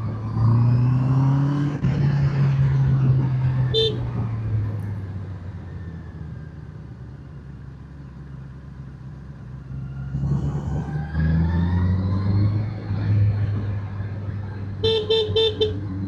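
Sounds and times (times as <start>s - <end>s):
motorcycle engine revving: 0.0s - 4.8s.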